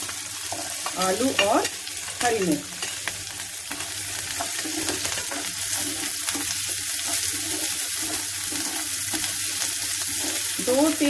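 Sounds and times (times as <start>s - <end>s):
vegetables sizzling in hot oil: 0.0s - 11.0s
metal spatula scraping a pan: 3.7s - 11.0s.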